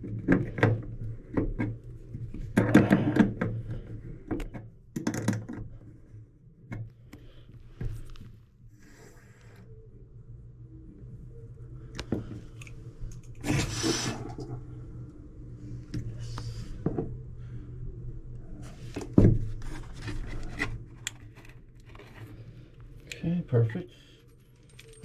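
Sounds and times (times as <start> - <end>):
steady low hum: 0.0 - 25.0
metal tools clinking and scraping: 24.3 - 25.0.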